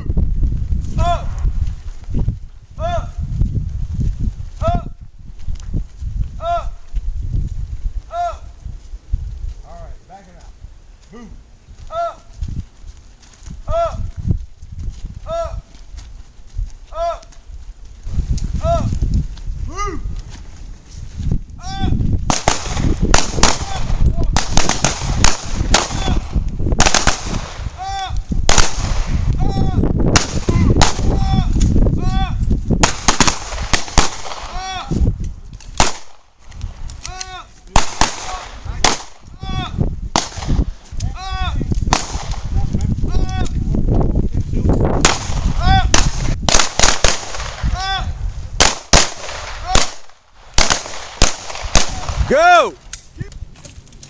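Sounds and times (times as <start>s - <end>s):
pistol shots: 22.3s - 27.7s, 28.5s - 29.2s, 30.2s - 31.1s, 32.8s - 34.6s, 35.8s - 36.2s, 37.8s - 39.2s, 40.1s - 40.6s, 41.9s - 42.4s, 45.0s - 47.7s, 48.6s - 52.3s.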